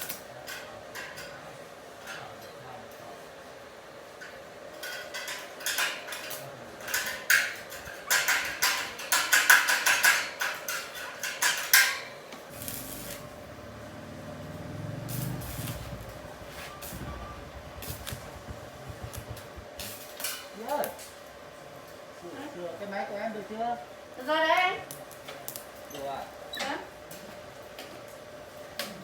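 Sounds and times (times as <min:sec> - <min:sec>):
low rumble: 0:13.3 - 0:19.8.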